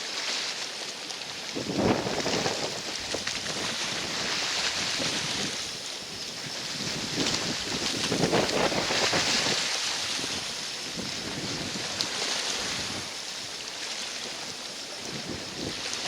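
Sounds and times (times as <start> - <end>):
waves splashing on shore: 0.0 - 16.0
wind buffeting microphone: 1.5 - 13.2, 14.9 - 16.0.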